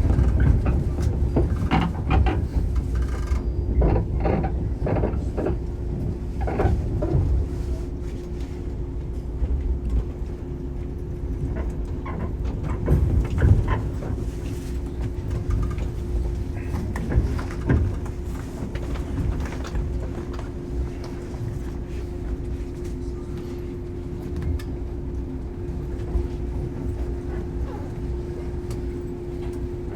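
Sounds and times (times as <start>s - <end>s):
train rumble and hum: 0.0s - 29.9s
knocks and clatters: 11.6s - 20.5s.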